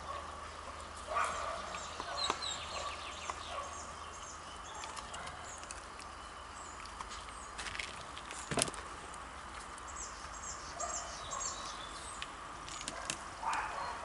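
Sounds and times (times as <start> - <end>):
small birds chirping: 0.0 - 8.6, 9.4 - 14.0.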